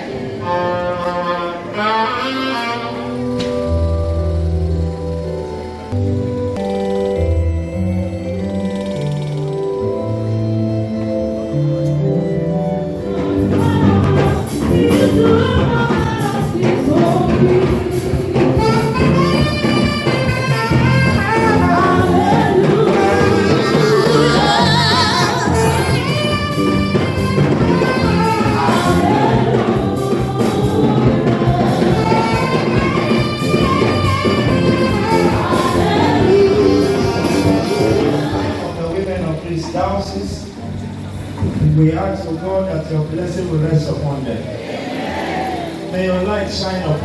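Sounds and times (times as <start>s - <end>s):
gospel singing: 0.0s - 7.4s, 9.8s - 47.0s
steady percussive beat: 12.9s - 39.5s.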